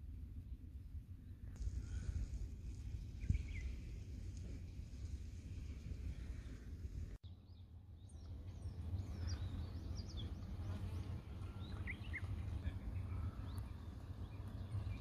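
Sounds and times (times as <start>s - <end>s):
small birds chirping: 2.7s - 4.0s, 7.2s - 15.0s.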